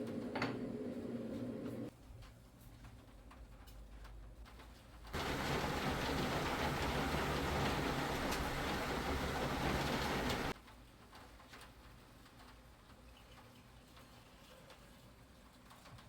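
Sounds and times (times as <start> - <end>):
steady rain hissing: 5.2 - 13.1.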